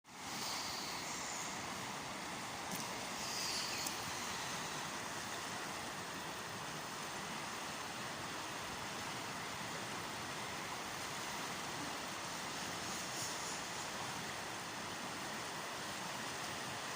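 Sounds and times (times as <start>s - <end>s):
river water rushing: 0.1s - 16.9s.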